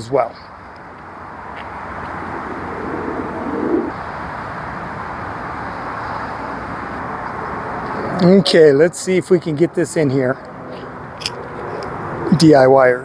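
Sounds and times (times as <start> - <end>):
bird cooing: 2.4 - 3.9.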